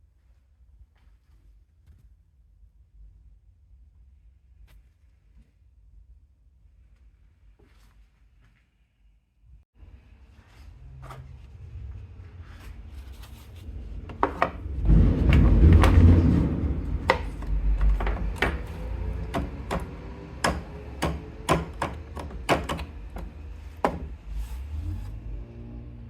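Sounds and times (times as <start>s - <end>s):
low rumble: 9.8s - 20.3s
sharp clicks and knocks: 14.2s - 24.2s.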